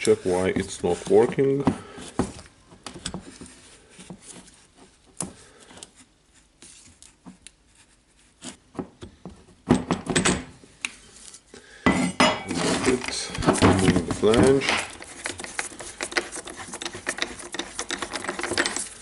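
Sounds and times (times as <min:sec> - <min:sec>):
tools clicking and knocking: 0:12.4 - 0:19.0.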